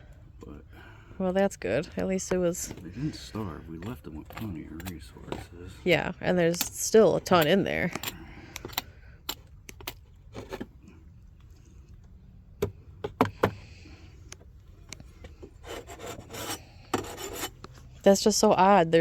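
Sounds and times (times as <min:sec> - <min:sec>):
wood rubbing and scraping: 0:15.0 - 0:18.1.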